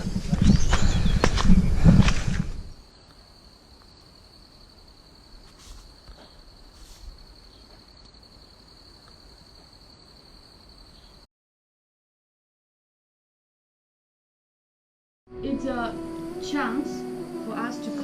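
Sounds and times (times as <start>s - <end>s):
cricket trilling: 0.0s - 11.3s.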